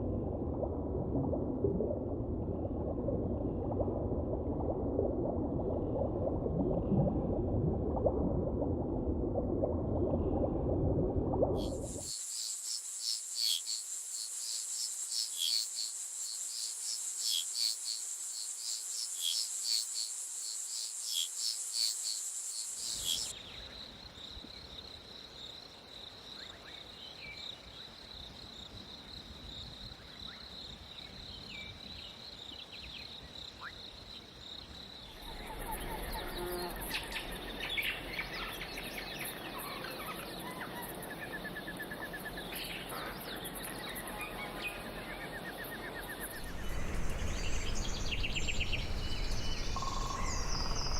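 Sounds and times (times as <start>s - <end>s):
insect drone: 11.6s - 39.7s, 41.0s - 50.9s
insects buzzing and chirping: 11.6s - 39.7s, 40.3s - 50.9s.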